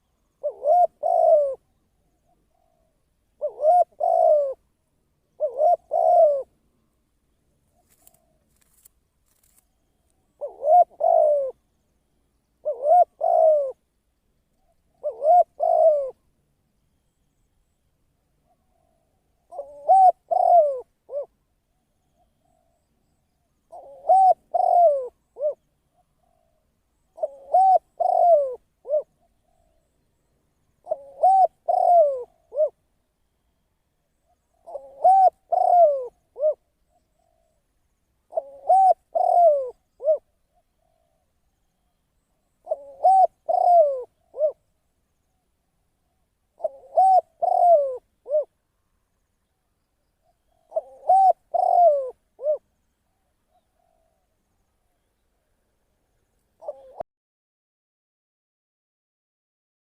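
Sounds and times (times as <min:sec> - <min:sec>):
dove cooing: 0:00.0 - 0:04.6, 0:05.3 - 0:06.6, 0:10.3 - 0:11.6, 0:12.6 - 0:13.9, 0:14.6 - 0:16.3, 0:18.4 - 0:21.4, 0:23.7 - 0:30.0, 0:30.8 - 0:32.8, 0:34.2 - 0:37.6, 0:38.2 - 0:41.4, 0:42.6 - 0:44.7, 0:46.1 - 0:48.6, 0:50.2 - 0:52.7, 0:53.5 - 0:54.3, 0:56.6 - 0:57.0.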